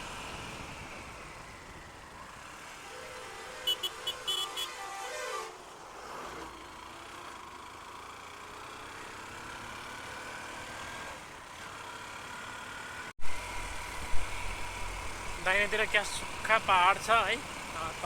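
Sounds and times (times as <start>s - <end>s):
road and wind noise: 0.0s - 18.0s
motorcycle engine running: 13.2s - 18.0s.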